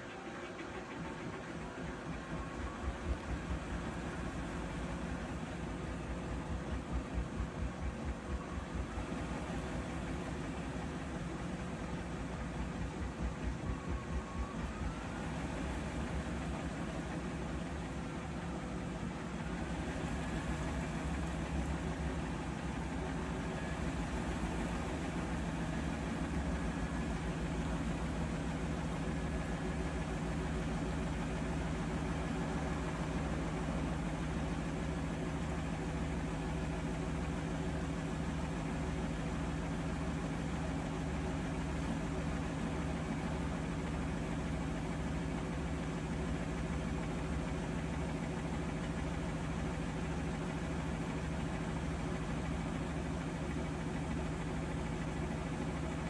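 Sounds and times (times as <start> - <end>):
washing machine spinning: 0.0 - 56.0.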